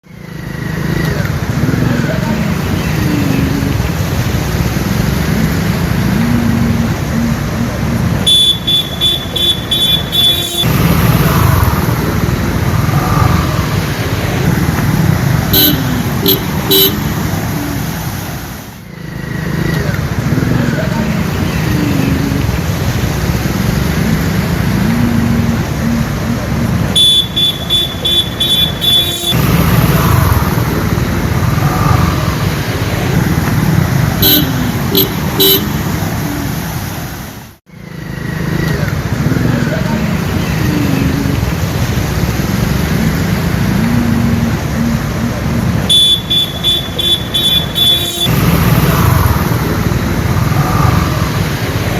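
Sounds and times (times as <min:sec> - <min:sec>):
road traffic rumble: 0:00.0 - 0:51.9
vehicle horn beeping: 0:08.2 - 0:11.9, 0:15.5 - 0:17.4, 0:27.0 - 0:30.4, 0:34.2 - 0:36.0, 0:45.9 - 0:49.0.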